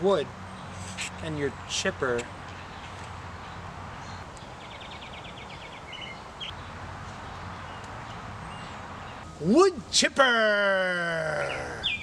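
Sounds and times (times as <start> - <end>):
outdoor background noise: 0.0 - 12.0
bird chirps: 2.4 - 9.5, 11.2 - 12.0
bird trilling: 11.2 - 12.0.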